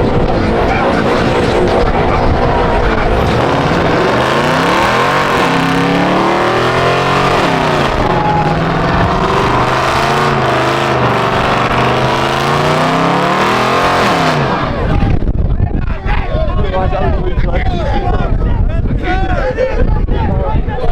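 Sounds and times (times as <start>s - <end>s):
car engine revving: 0.0s - 15.2s.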